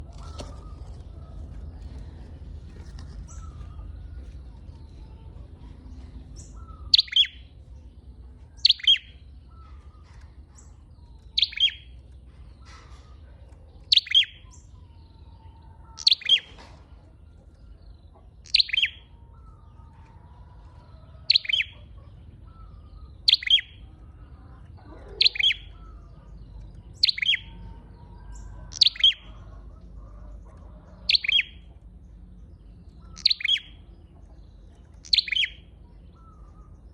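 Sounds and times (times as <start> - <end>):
faint low hum: 0.0 - 36.9.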